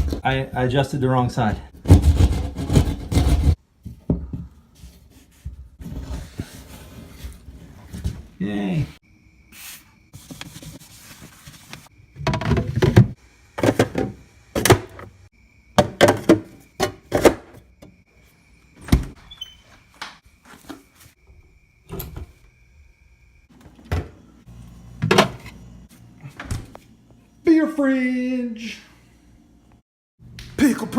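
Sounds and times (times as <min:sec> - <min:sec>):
fridge thuds and clatters: 0:01.8 - 0:04.5, 0:12.1 - 0:15.2, 0:15.8 - 0:18.0, 0:18.8 - 0:19.2, 0:23.6 - 0:24.2, 0:25.0 - 0:25.6.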